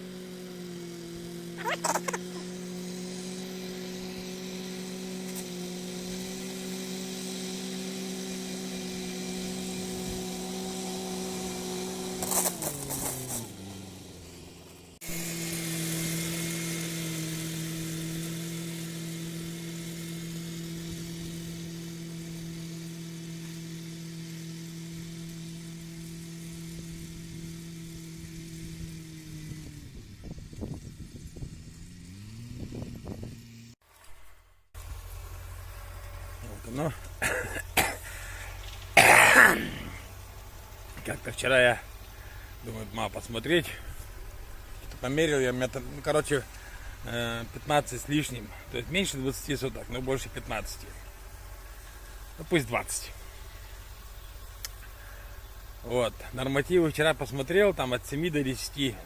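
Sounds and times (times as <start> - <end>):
tractor mower droning: 0.0 - 59.0
clatters: 12.2 - 13.8.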